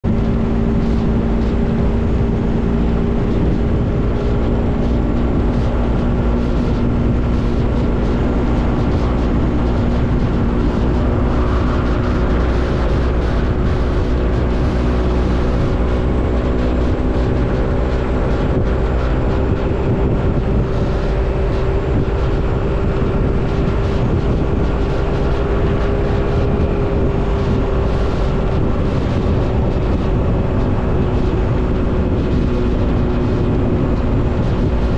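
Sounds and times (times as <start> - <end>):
motorcycle engine running: 0.0 - 34.9
wind and road noise: 0.0 - 34.9.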